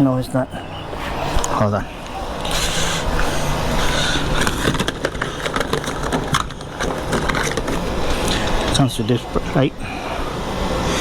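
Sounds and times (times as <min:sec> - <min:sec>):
rustling and crinkling: 0:02.0 - 0:08.9.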